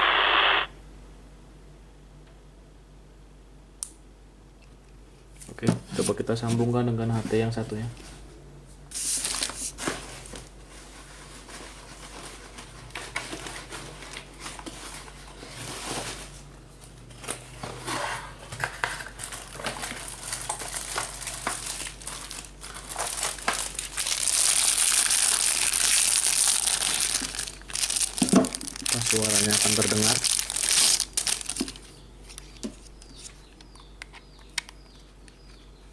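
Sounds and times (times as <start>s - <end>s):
radio static hiss: 0.0s - 0.7s.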